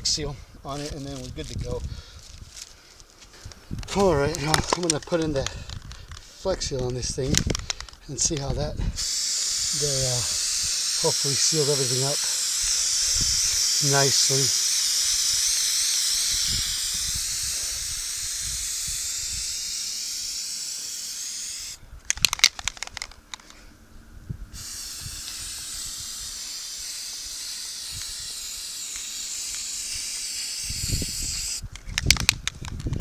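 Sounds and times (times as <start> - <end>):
aerosol can spraying: 9.0 - 21.8, 24.6 - 31.6
sharp clicks: 20.7 - 23.6, 25.1 - 33.0.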